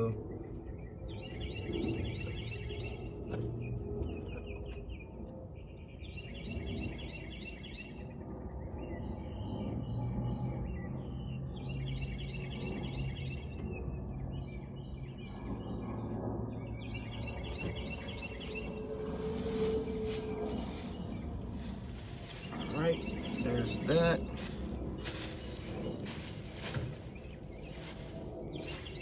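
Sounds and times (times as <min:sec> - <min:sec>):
steady low hum: 0:00.0 - 0:29.0
bird singing fast trills: 0:05.8 - 0:29.0.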